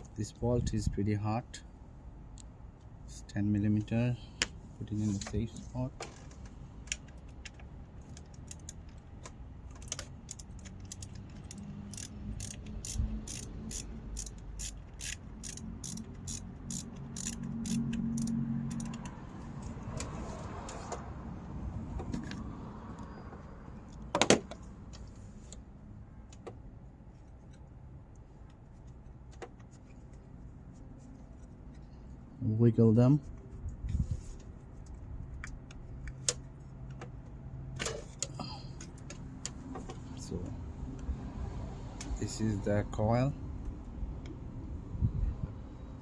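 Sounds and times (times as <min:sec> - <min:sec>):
socket ratchet clicking: 0:06.9 - 0:09.0, 0:09.7 - 0:19.2.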